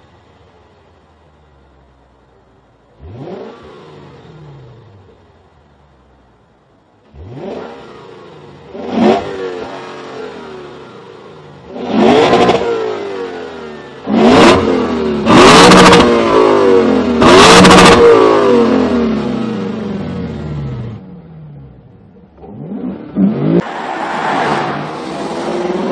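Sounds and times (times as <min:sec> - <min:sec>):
car engine revving in blips: 0:02.9 - 0:05.1, 0:07.0 - 0:25.9.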